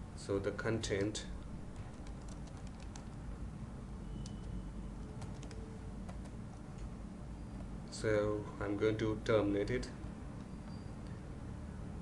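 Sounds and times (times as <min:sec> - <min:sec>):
steady low hum: 0:00.0 - 0:12.0
keyboard keystrokes: 0:01.8 - 0:03.2, 0:04.2 - 0:06.9.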